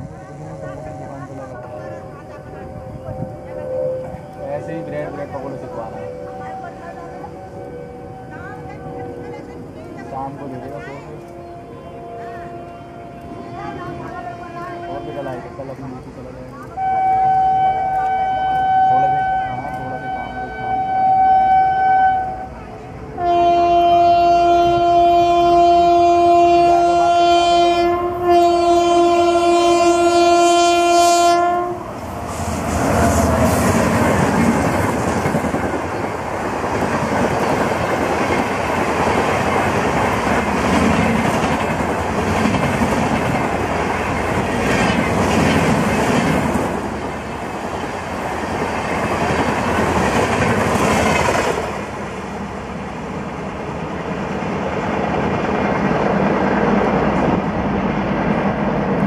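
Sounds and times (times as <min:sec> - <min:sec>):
train wheels rushing on rails: 0:00.0 - 0:59.0
train horn blasts: 0:11.0 - 0:15.9, 0:16.7 - 0:31.9.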